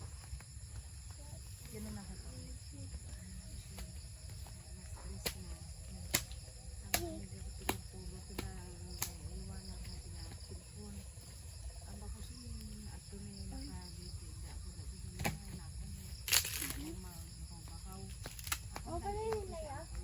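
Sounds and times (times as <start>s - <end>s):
crickets droning: 0.0s - 20.0s.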